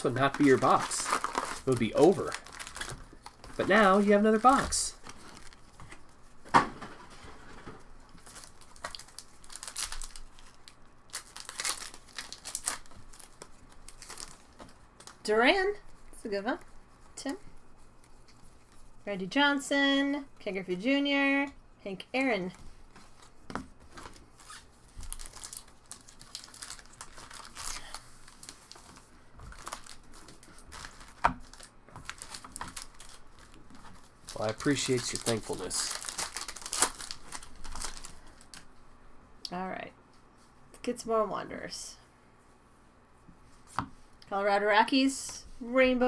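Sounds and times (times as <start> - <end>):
plastic wrapper crinkling and tearing: 0.0 - 6.4, 7.6 - 15.2, 23.0 - 38.7.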